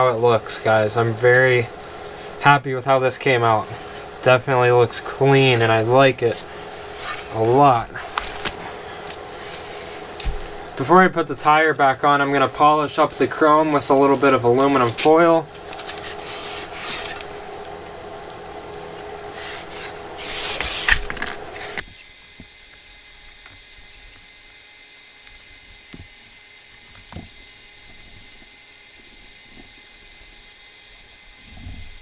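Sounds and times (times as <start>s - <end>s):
quiet steady hum: 0.0s - 32.0s
foil scrubbing metal rim: 21.8s - 32.0s.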